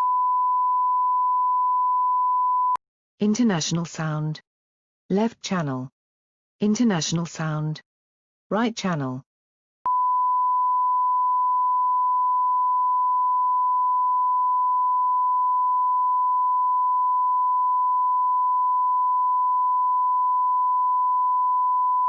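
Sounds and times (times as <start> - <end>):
sine reference tone: 0.0 - 2.8, 9.9 - 22.0.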